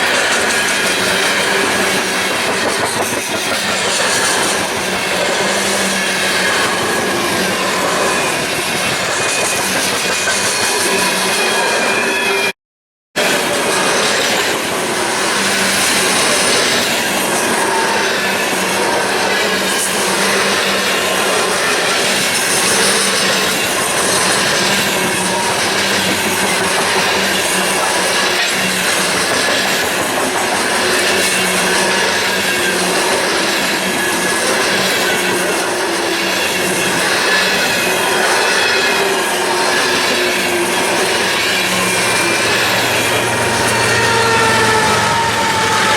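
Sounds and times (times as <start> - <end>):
train wheels rumbling on track: 0.0 - 12.5, 13.2 - 45.9
faint wheel squeal: 38.4 - 45.9.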